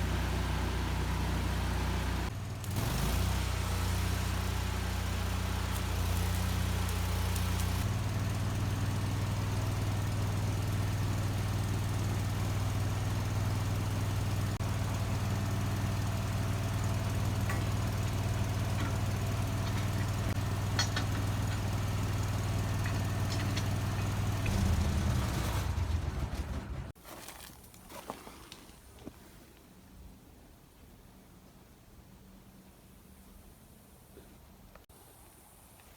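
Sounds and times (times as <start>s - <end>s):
engine humming: 0.0s - 27.0s.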